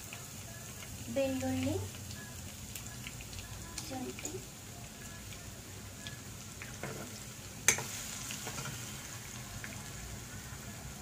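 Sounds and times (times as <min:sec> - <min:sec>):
onion frying in hot oil: 0:00.0 - 0:11.0
spoon scraping pan: 0:06.7 - 0:08.9.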